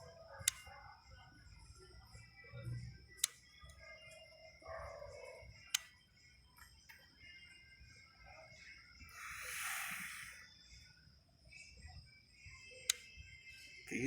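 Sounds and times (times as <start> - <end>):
sharp clicks: 0.4 - 0.7, 3.2 - 3.8.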